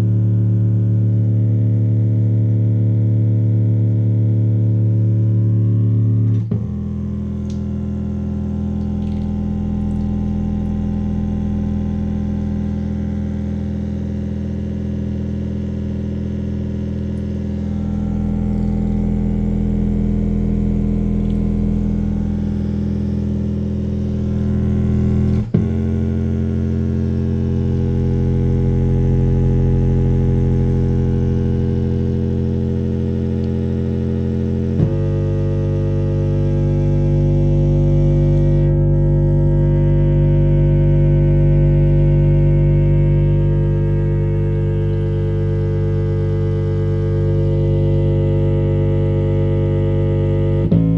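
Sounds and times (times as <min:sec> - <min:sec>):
synthesizer bass notes: 0:00.0 - 0:50.9.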